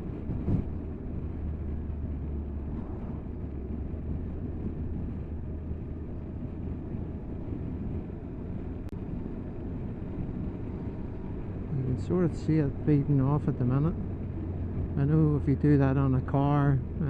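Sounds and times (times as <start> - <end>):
motorcycle engine hum: 0.0 - 17.0
wind and road noise: 0.0 - 17.0.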